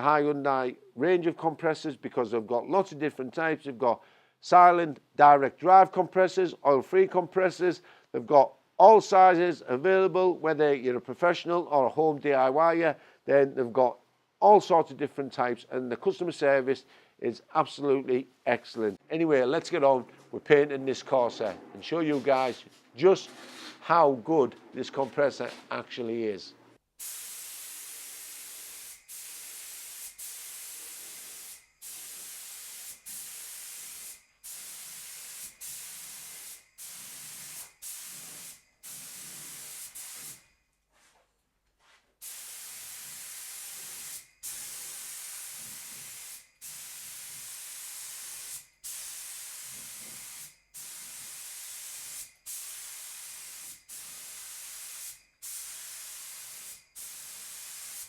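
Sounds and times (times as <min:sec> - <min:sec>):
spray gun hissing: 0:27.0 - 0:40.4, 0:42.2 - 0:58.0.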